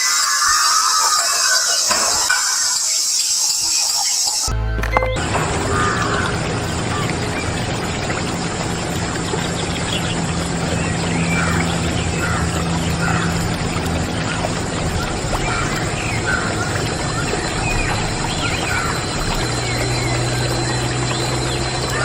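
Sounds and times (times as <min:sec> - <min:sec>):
low hum: 0:04.5 - 0:22.0.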